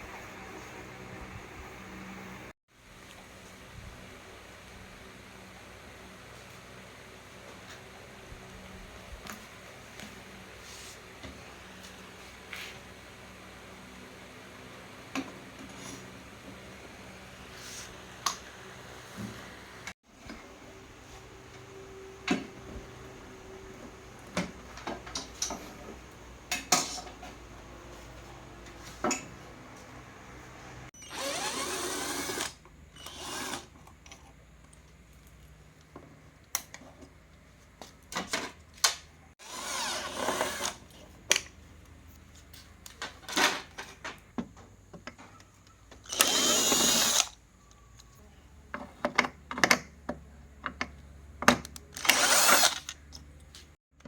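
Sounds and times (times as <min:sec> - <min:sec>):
cordless drill running: 0:31.0 - 0:33.7, 0:39.4 - 0:40.8, 0:46.1 - 0:47.3, 0:52.0 - 0:52.9.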